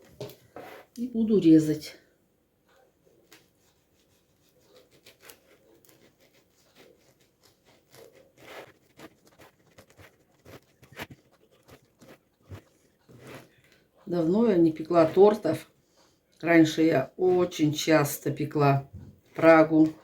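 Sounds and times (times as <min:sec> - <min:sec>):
knife scraping through cake: 0:00.0 - 0:01.0, 0:03.2 - 0:18.2.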